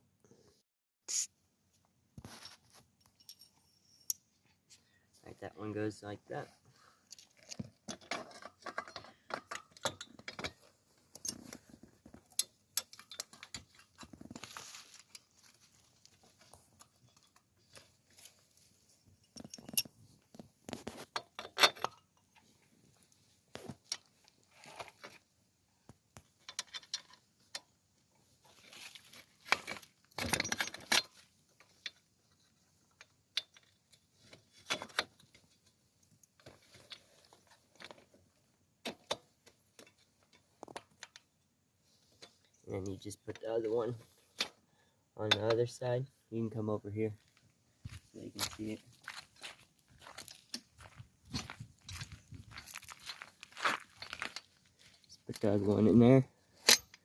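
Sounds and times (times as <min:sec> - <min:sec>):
metallic clinks of wheel hardware: 0:03.0 - 0:04.4, 0:07.1 - 0:11.6, 0:12.2 - 0:14.1, 0:16.7 - 0:20.0, 0:21.1 - 0:22.5, 0:29.6 - 0:37.7, 0:56.6 - 0:57.0.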